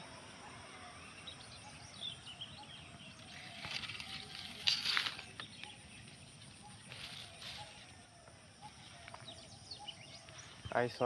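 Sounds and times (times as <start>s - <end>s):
faint bird chirps: 0.0s - 11.0s
rustling and crinkling litter: 3.3s - 5.6s, 6.8s - 8.0s.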